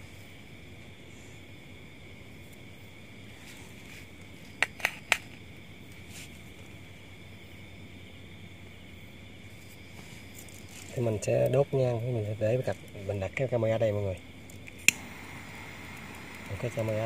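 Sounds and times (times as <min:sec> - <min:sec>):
insects chirring: 0:00.0 - 0:17.0
sharp clicks: 0:14.5 - 0:15.1.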